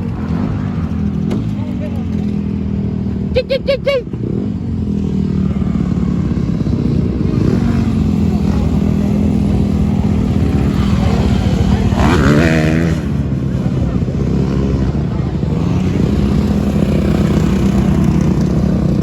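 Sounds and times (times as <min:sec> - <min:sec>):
dirt bike engine running: 0:04.2 - 0:19.0.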